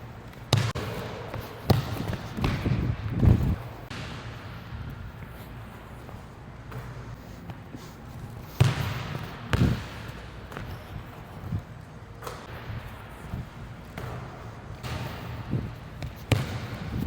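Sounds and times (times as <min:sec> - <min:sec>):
basketball bouncing: 0:00.3 - 0:05.0, 0:08.5 - 0:17.0
basketball hit: 0:00.5 - 0:03.0, 0:03.9 - 0:04.6, 0:08.6 - 0:10.7, 0:14.0 - 0:17.0.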